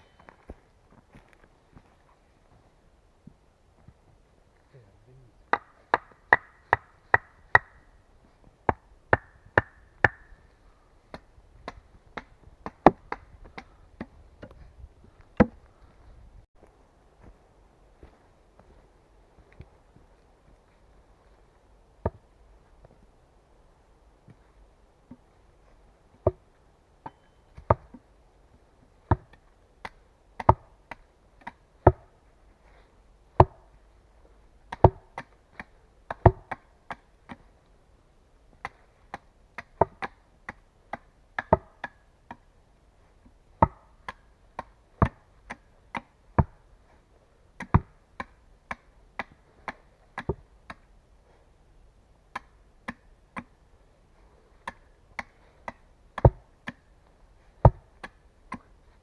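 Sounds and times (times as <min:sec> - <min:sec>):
wood being chopped: 0:05.5 - 0:07.8, 0:08.7 - 0:10.3, 0:11.1 - 0:14.5, 0:15.4 - 0:15.6, 0:29.1 - 0:32.1, 0:33.4 - 0:33.7, 0:34.7 - 0:37.4, 0:38.6 - 0:42.4, 0:43.6 - 0:46.6, 0:47.6 - 0:50.8, 0:52.3 - 0:53.5, 0:54.6 - 0:56.9, 0:57.6 - 0:58.7.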